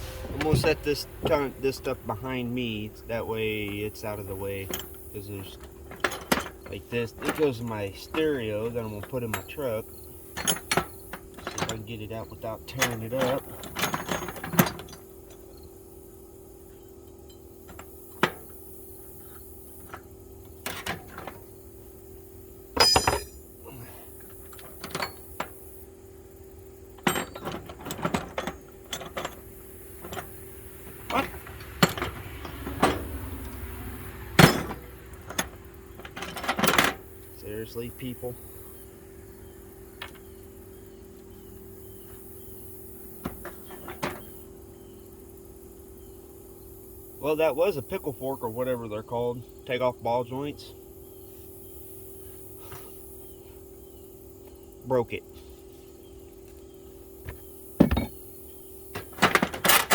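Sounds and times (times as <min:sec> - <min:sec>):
tools clanking and clinking: 0:00.0 - 0:15.7, 0:19.2 - 0:21.5, 0:22.7 - 0:25.6, 0:26.9 - 0:38.4, 0:40.0 - 0:40.5, 0:43.2 - 0:44.4, 0:57.2 - 0:58.2, 0:58.9 - 0:59.9
steady hum: 0:00.0 - 0:48.1
metal hand tools clinking: 0:22.8 - 0:23.5.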